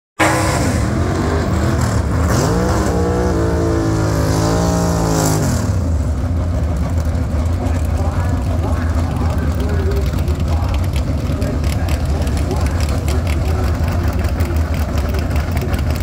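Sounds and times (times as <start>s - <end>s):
car engine revving: 0.2s - 16.0s
engine idle rumble: 5.7s - 16.0s.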